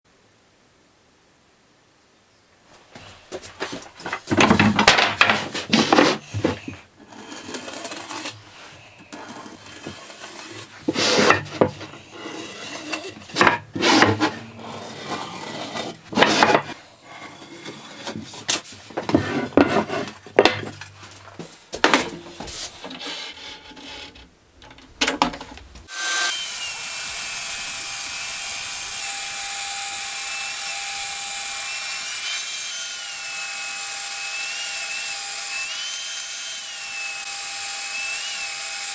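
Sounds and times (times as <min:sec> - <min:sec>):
rubbing strokes on wood: 0:02.8 - 0:24.1.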